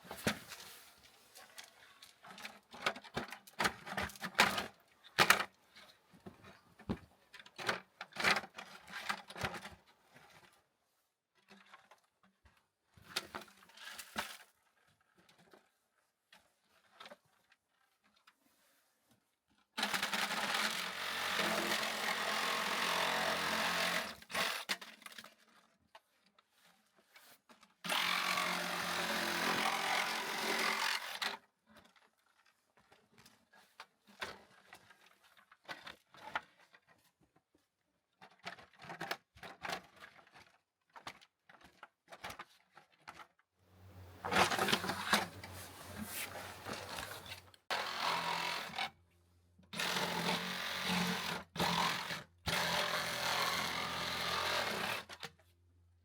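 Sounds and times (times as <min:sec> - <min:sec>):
handheld power tool running: 0:20.4 - 0:24.4, 0:27.9 - 0:31.2, 0:43.8 - 0:48.9, 0:49.7 - 0:55.2
tools clattering: 0:44.0 - 0:47.4.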